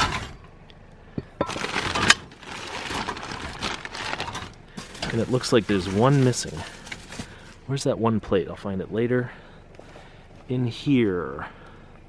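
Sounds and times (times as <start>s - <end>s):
plastic rustling and crinkling: 1.4s - 7.6s.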